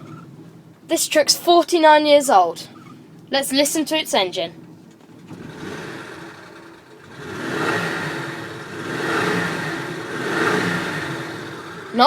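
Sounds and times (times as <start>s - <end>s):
pickup engine revving: 5.0s - 12.0s.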